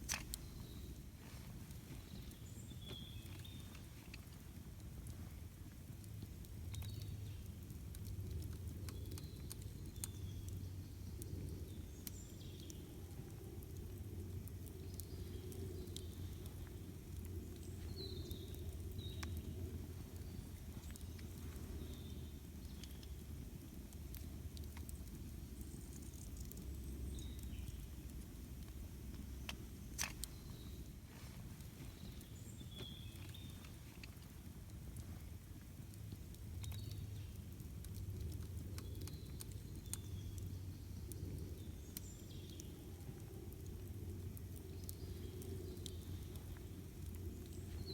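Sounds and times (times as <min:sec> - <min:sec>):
campfire crackling and popping: 0:00.0 - 0:47.9
low steady rumble: 0:00.0 - 0:47.9.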